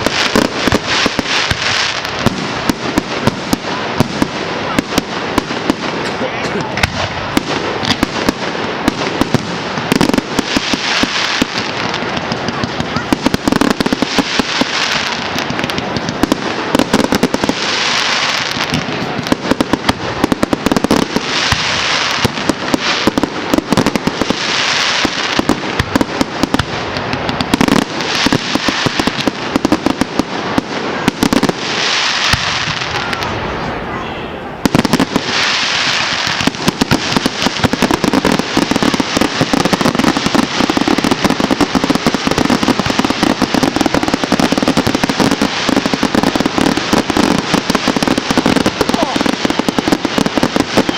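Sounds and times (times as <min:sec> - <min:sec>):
fireworks bangs and crackling: 0:00.0 - 0:50.9
fireworks hissing surge: 0:34.6 - 0:50.9.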